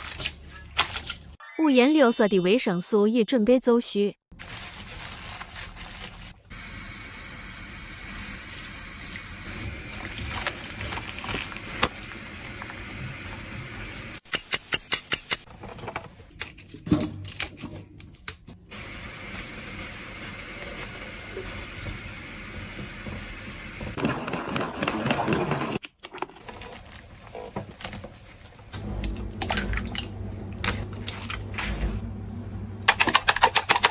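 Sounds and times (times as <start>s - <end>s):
food handling noise: 4.4s - 6.5s, 9.9s - 12.0s.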